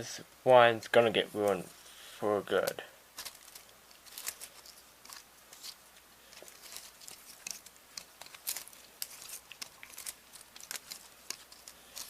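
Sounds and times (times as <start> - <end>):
videotape crinkling and clicking: 2.6 - 12.0.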